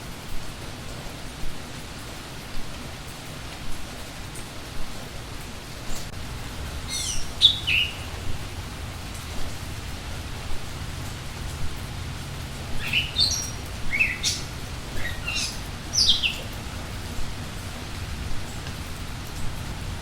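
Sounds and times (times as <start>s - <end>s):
steady rain falling: 0.0s - 20.0s
songbird chirping: 6.8s - 8.6s, 12.7s - 16.8s.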